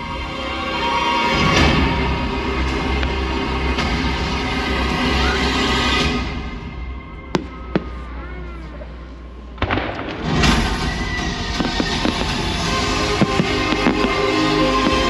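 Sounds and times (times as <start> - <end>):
music: 0.0 - 7.8, 9.8 - 15.0
fireworks bangs: 7.0 - 15.0
fireworks crackling pops: 9.6 - 15.0.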